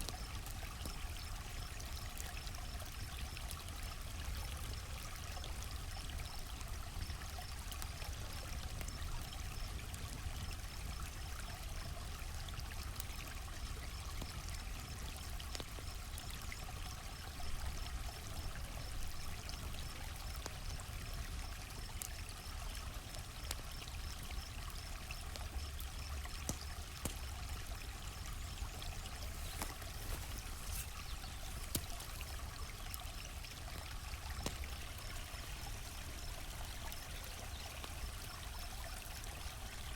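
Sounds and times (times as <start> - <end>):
campfire crackling and popping: 0.0 - 39.9
crickets chirping: 15.8 - 39.9.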